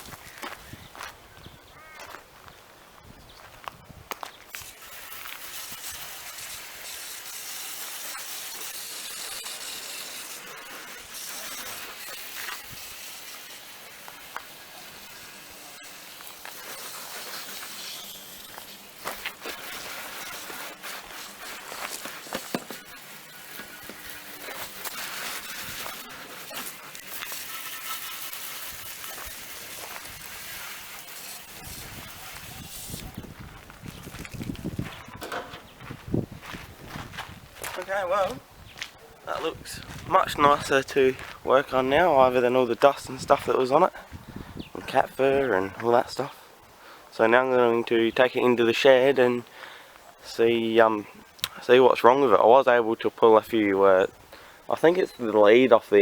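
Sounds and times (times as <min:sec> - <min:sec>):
water spray hissing: 0:04.5 - 0:35.4.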